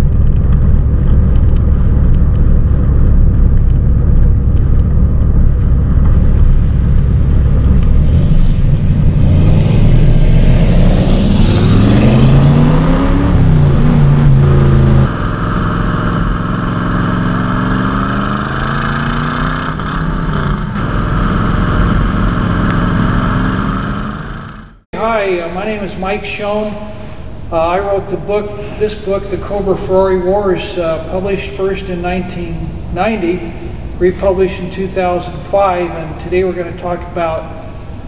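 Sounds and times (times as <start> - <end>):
car engine running and revving: 0.0 - 24.8.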